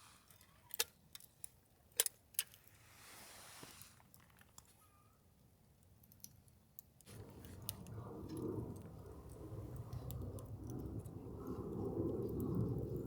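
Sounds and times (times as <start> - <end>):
campfire crackling: 7.0 - 13.0.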